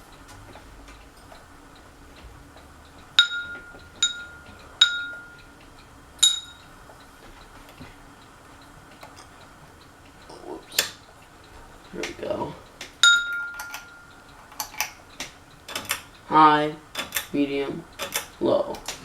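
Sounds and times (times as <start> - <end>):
faint steady hum: 0.0 - 19.0
sharp metallic clinks: 3.2 - 5.5, 6.2 - 6.7, 13.0 - 14.9.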